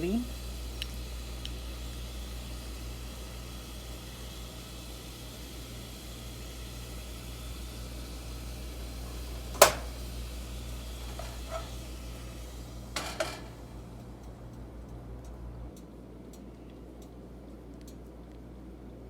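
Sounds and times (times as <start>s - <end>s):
steady low hum: 0.0s - 19.0s
crockery clinking: 9.1s - 10.0s, 11.0s - 11.8s, 13.0s - 13.6s.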